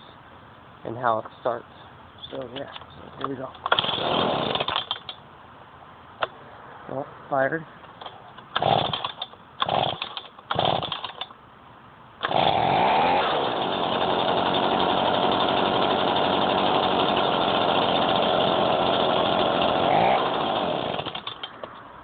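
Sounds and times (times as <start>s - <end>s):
starter cord pull: 3.6s - 5.2s, 8.0s - 11.3s, 20.8s - 21.7s
leaf blower engine running: 12.2s - 21.4s.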